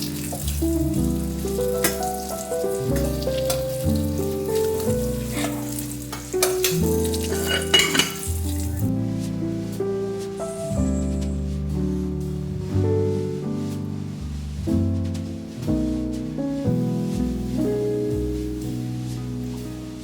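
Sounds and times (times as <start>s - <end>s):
food sizzling in a pan: 0.0s - 8.8s
soft background music: 0.0s - 20.0s.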